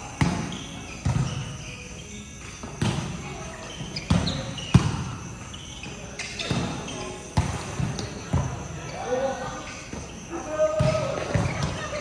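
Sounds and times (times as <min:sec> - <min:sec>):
basketballs bouncing on gym floor: 0:00.0 - 0:09.0, 0:09.7 - 0:12.0
short high squeaks: 0:05.5 - 0:07.3.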